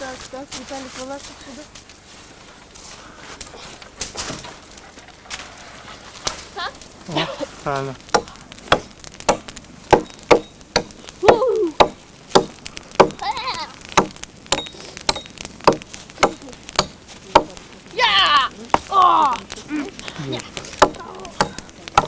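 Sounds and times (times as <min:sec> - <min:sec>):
hatchet chopping brushwood: 0:08.0 - 0:22.0
voice calls: 0:10.6 - 0:14.0, 0:16.0 - 0:22.0.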